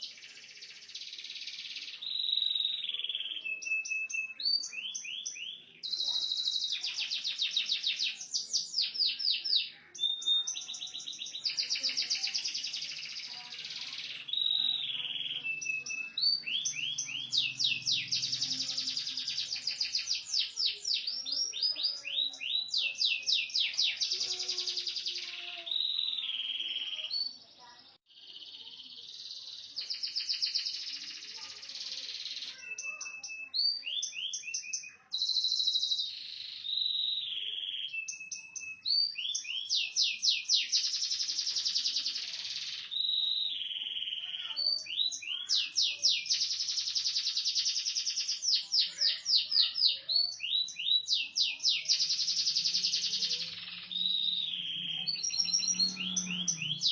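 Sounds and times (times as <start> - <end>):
canary singing trills: 0.0 - 56.9.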